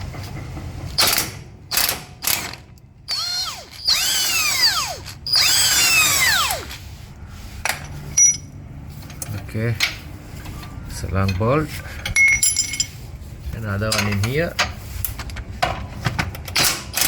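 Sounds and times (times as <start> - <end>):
power tool motor winding up: 3.1 - 6.8.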